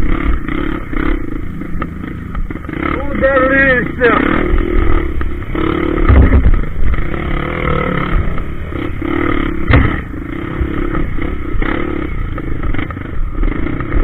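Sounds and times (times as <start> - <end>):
motorcycle engine revving: 0.0 - 14.0
heavy knocks: 6.0 - 6.6, 9.7 - 10.1.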